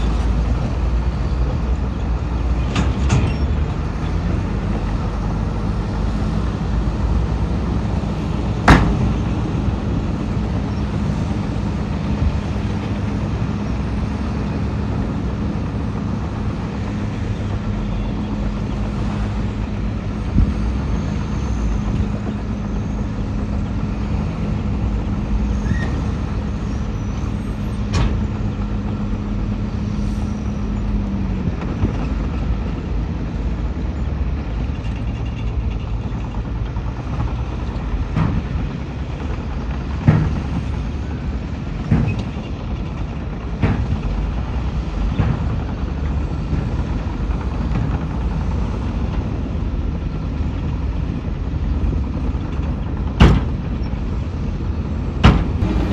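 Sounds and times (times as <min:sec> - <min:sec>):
diesel machinery engine running: 0:00.0 - 0:55.9.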